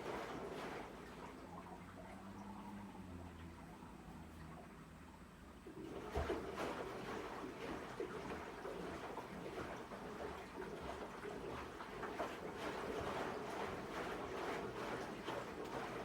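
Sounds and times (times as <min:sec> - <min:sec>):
washing machine water sloshing: 0:00.0 - 0:02.0, 0:05.7 - 0:16.0.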